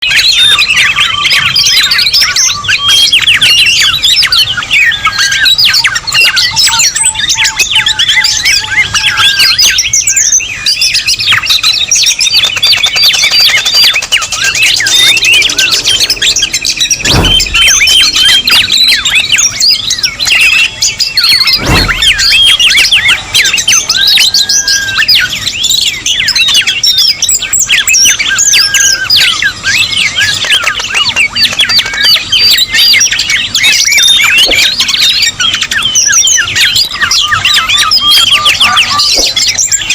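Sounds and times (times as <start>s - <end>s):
many birds chirping and whistling: 0.0s - 39.9s
dull thump: 16.9s - 18.0s, 21.6s - 22.4s.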